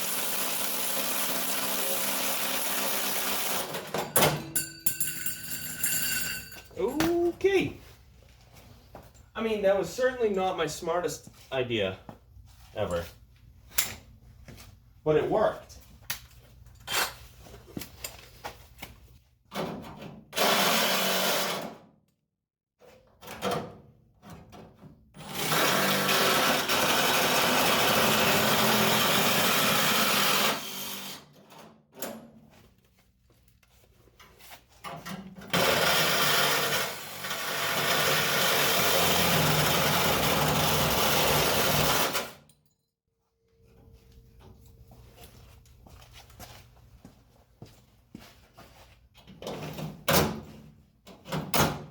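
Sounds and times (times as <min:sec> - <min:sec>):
handheld power tool running: 0:00.0 - 0:03.8, 0:20.4 - 0:21.6, 0:25.2 - 0:31.3, 0:35.5 - 0:42.3.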